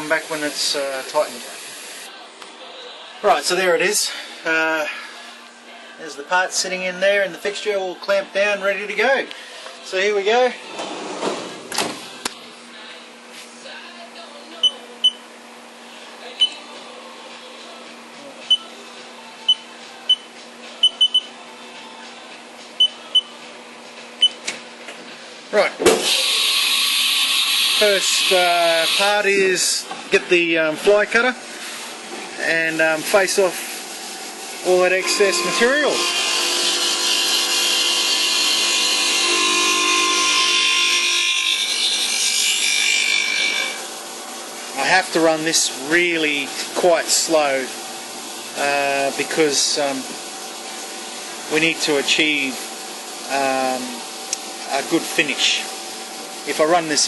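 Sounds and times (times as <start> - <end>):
low machine hum: 26.8 - 46.8
sustained machine whine: 34.6 - 38.1, 39.0 - 41.4.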